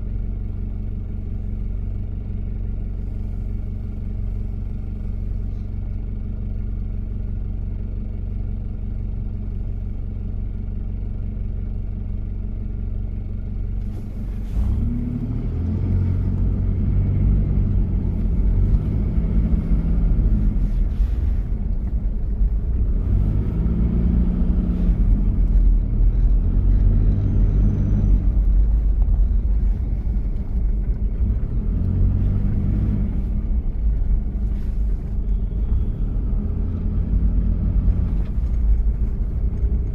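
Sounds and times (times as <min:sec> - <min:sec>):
diesel engine idling: 0:00.0 - 0:39.9
vehicle accelerating through gears: 0:14.4 - 0:21.4, 0:22.7 - 0:39.9.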